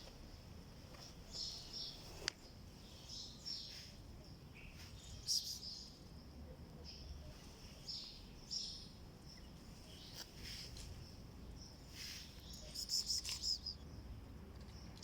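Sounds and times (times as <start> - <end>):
low steady background rumble: 0.0 - 15.0
small birds chirping: 0.0 - 15.0.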